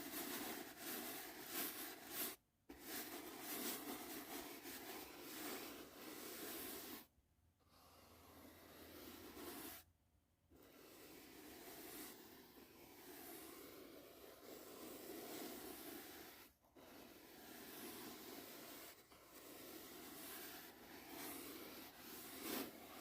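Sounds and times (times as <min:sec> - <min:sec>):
brush swishing sweeps: 0:10.8 - 0:23.0.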